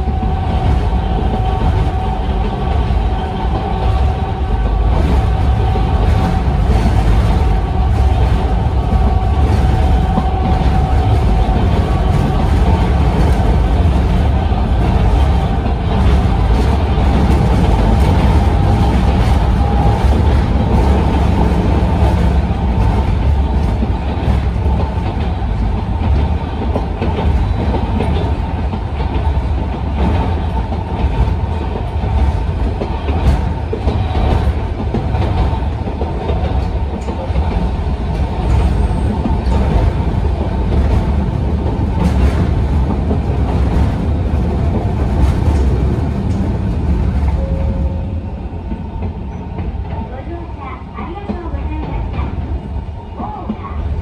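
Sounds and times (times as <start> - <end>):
wheels rumbling on rails: 0.0 - 54.0.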